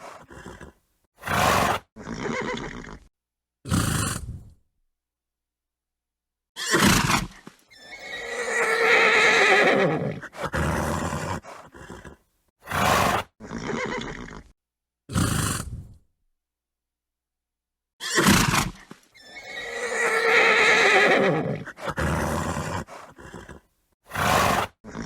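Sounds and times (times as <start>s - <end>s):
horse snorting: 0.0s - 3.1s, 3.7s - 4.6s, 6.7s - 14.5s, 15.1s - 16.0s, 18.1s - 25.0s
horse whinnying: 0.0s - 3.1s, 6.6s - 14.5s, 18.0s - 25.0s.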